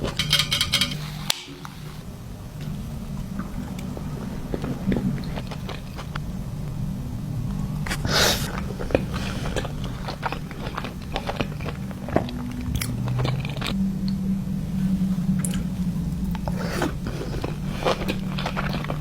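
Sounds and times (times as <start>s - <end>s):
chewing with crisp crunches: 2.6s - 6.4s, 7.5s - 14.2s, 14.9s - 19.0s.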